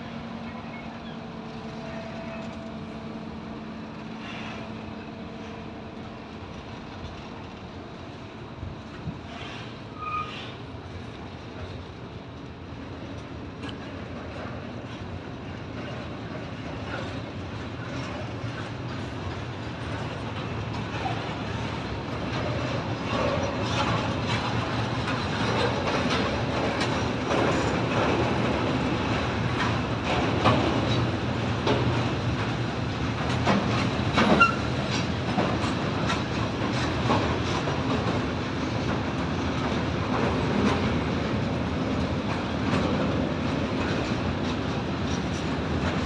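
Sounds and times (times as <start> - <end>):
wheels clattering over rail joints: 13.0 - 46.0.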